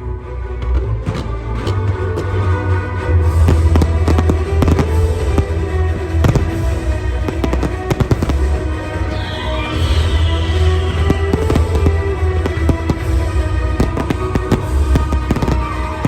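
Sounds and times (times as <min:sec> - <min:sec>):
fireworks bursting and crackling: 0:00.6 - 0:16.0
loud music with heavy bass: 0:00.8 - 0:16.0
falling firework whistle: 0:09.0 - 0:13.0.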